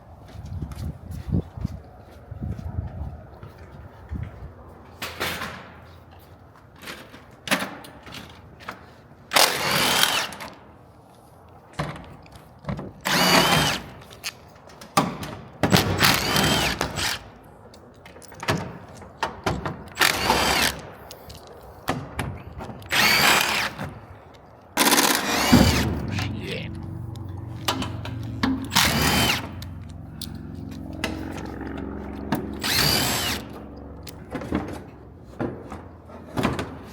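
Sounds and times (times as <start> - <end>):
power drill whining in bursts: 9.4 - 10.5, 13.0 - 14.0, 15.8 - 17.3, 19.9 - 20.9, 22.8 - 23.9, 24.8 - 26.1, 27.7 - 30.3, 32.4 - 33.6.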